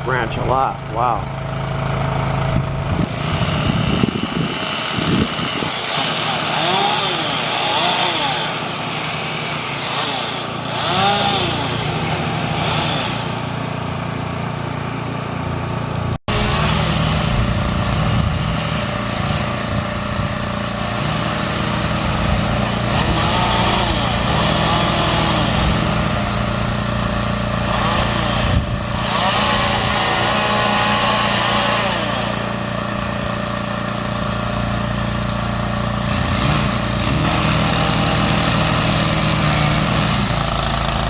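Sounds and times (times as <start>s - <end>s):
engine running steadily: 0.0s - 41.0s
chainsaw revving: 0.1s - 41.0s.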